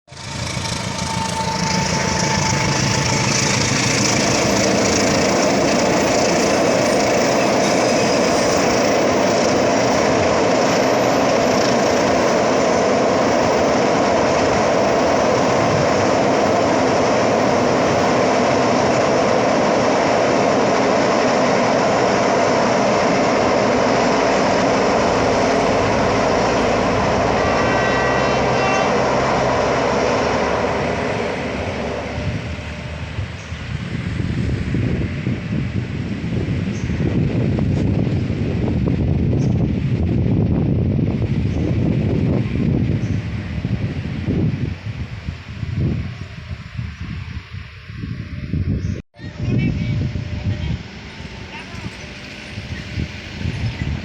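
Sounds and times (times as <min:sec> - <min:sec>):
train wheels rumbling on rails: 0:00.1 - 0:54.0.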